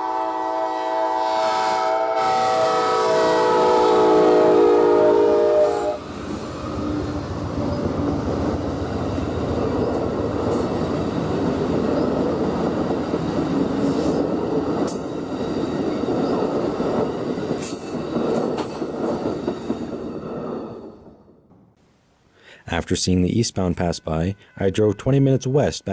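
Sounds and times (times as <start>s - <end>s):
train horn chord: 0.0s - 6.1s, 23.7s - 25.9s
train rumbling by: 0.0s - 21.7s.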